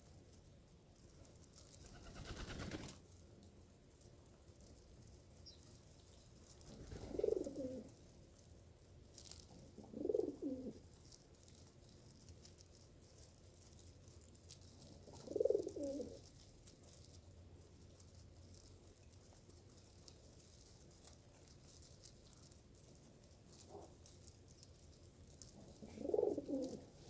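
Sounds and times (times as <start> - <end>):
dove cooing: 6.7 - 7.9, 9.7 - 10.8, 15.1 - 16.2, 25.6 - 27.0.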